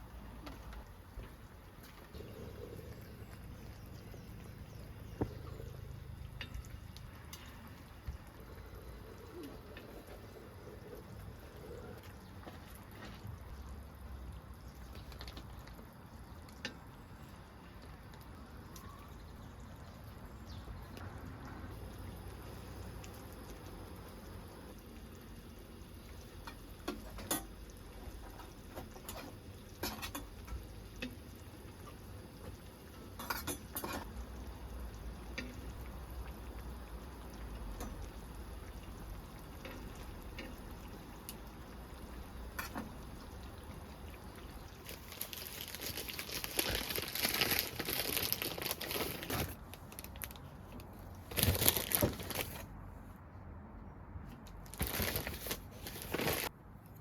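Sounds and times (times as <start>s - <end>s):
pots and utensils clinking: 26.4s - 31.2s, 32.9s - 34.2s, 42.5s - 43.0s.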